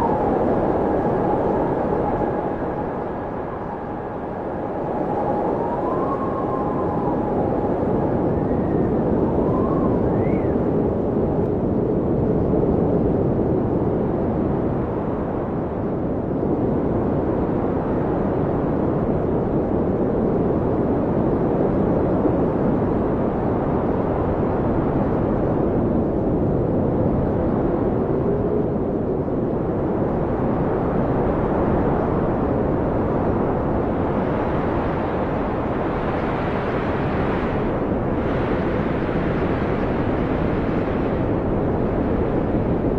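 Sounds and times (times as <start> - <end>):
faint whistling howls: 0.0 - 10.9
blizzard wind roaring: 0.0 - 42.9.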